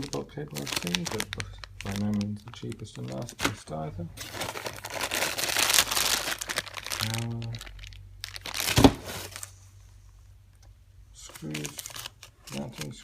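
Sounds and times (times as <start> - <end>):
plastic packaging crinkling: 0.0 - 9.6, 11.2 - 13.0.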